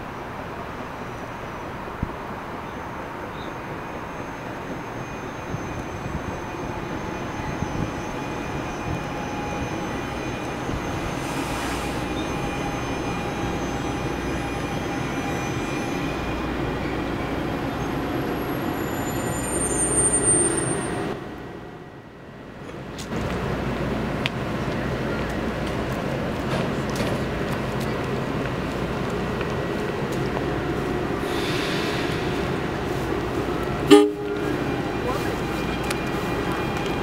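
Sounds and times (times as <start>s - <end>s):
train rumbling into station: 0.0s - 37.0s
brakes squealing: 4.0s - 21.2s.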